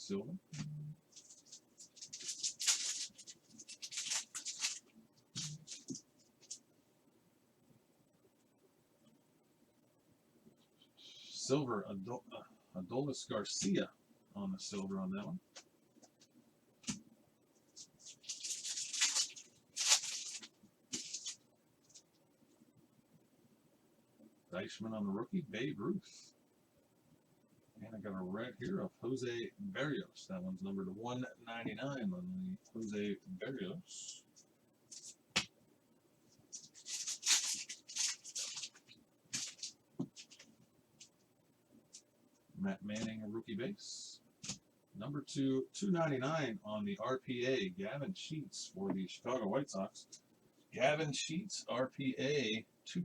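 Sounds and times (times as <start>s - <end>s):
cards sliding and rustling: 17.8s - 22.0s, 36.5s - 41.1s.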